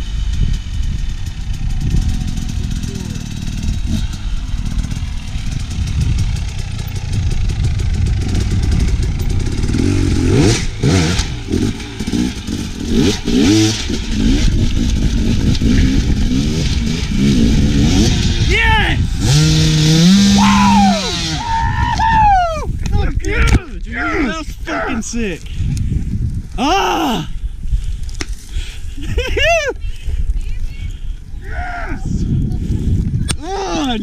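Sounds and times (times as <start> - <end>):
dirt bike engine revving: 0.0 - 21.8.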